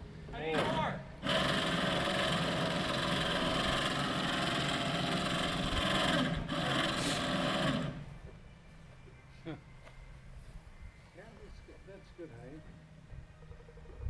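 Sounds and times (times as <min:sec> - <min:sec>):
power saw running: 0:00.6 - 0:08.1.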